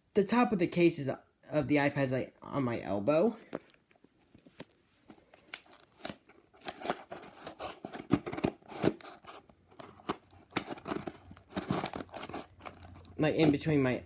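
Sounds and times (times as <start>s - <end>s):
packaging rustling: 3.4s - 13.7s
packaging clicks and snips: 5.1s - 13.6s.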